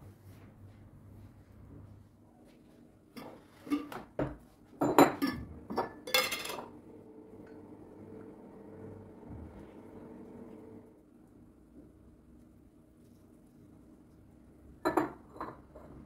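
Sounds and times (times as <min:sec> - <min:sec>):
kitchenware clinking and knocking: 0:03.2 - 0:06.7, 0:14.8 - 0:16.0.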